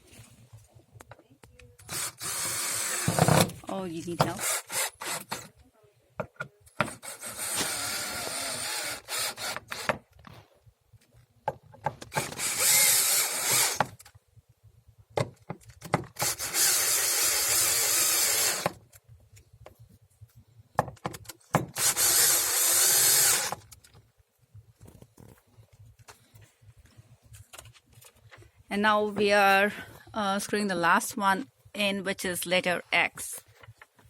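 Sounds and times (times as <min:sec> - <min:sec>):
cordless drill driving bolts: 0:01.8 - 0:03.6, 0:04.2 - 0:05.5, 0:06.8 - 0:10.0, 0:12.0 - 0:14.1, 0:16.1 - 0:18.8, 0:21.6 - 0:23.8.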